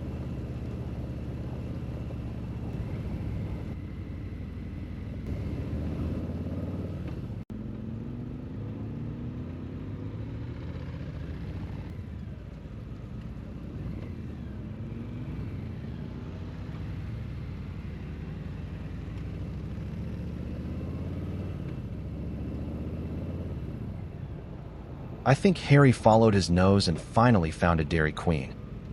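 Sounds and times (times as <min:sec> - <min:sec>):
motorcycle engine revving: 0:04.8 - 0:12.1, 0:13.5 - 0:23.8.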